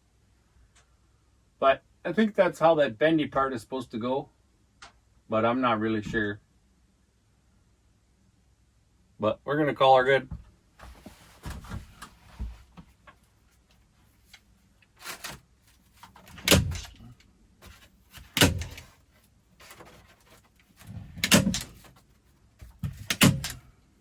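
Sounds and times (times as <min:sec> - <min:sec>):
staple gun firing: 0:18.4 - 0:18.8, 0:23.0 - 0:23.6.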